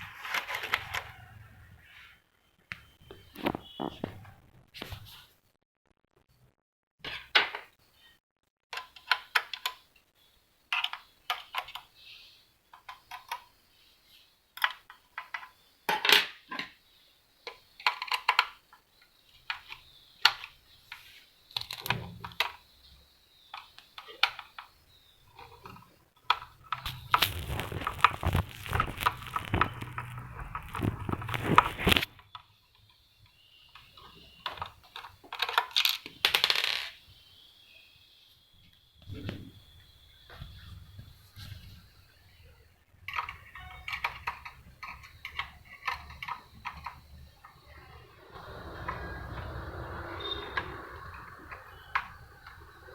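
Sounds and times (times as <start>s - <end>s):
plastic parts clicking and knocking: 8.7s - 9.9s, 10.7s - 11.9s, 12.7s - 13.6s, 14.6s - 16.8s, 17.4s - 22.7s, 23.5s - 37.0s, 43.1s - 47.7s
scraping and rattling: 26.8s - 32.1s.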